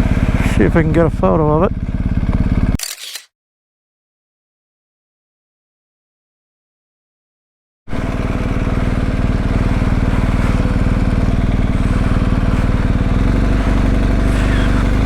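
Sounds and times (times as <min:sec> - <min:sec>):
motorcycle engine idling: 0:00.0 - 0:02.8, 0:07.9 - 0:15.0.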